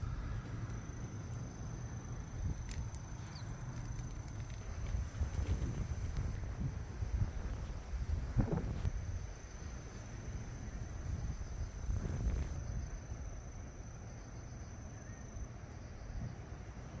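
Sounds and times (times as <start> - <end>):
wind buffeting microphone: 2.3 - 9.4, 10.4 - 12.9.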